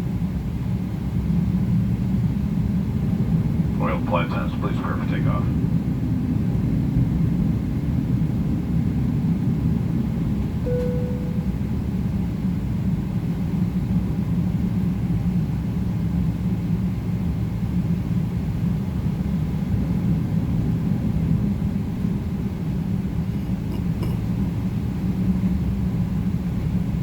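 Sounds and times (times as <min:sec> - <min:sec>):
airplane cabin rumble: 0:00.0 - 0:27.0
short single tone: 0:10.6 - 0:11.6.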